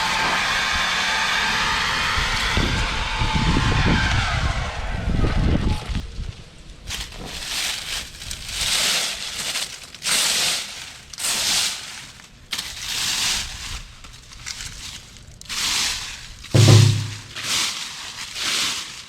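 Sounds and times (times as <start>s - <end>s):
dry leaves crunching and rustling: 6.9s - 19.0s.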